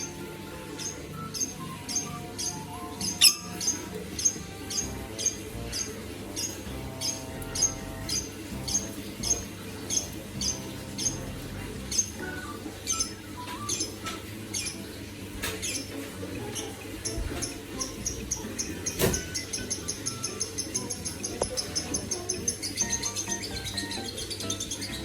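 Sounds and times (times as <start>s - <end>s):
bird chirping: 0.0s - 25.0s.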